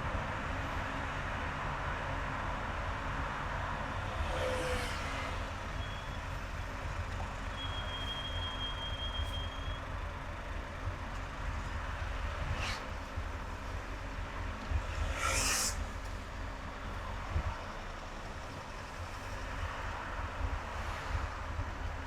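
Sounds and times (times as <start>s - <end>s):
car road and engine rumble: 0.0s - 22.0s
short whoosh: 14.7s - 16.1s.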